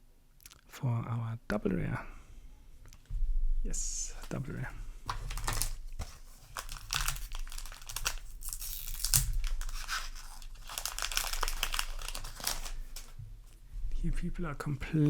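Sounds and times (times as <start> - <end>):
wrapper tearing and crinkling: 4.2 - 13.2.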